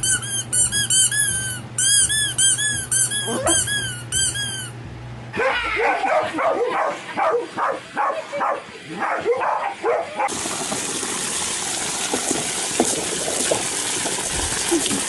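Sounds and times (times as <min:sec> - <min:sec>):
dog barking in high yips: 0:03.1 - 0:03.9, 0:05.4 - 0:10.3.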